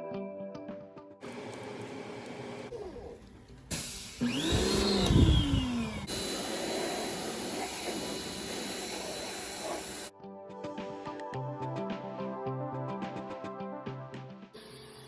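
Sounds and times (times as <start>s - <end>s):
pressure washer motor whining: 1.2s - 10.1s
pressure washer hiss: 3.7s - 10.1s.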